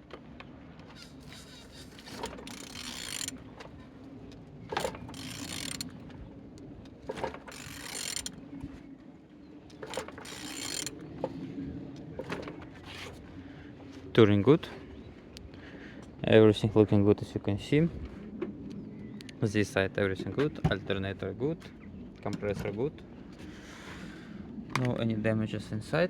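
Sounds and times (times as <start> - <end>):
mechanical clicking and rasping: 0.9 - 3.8, 4.7 - 6.0, 7.1 - 8.4, 9.8 - 11.0.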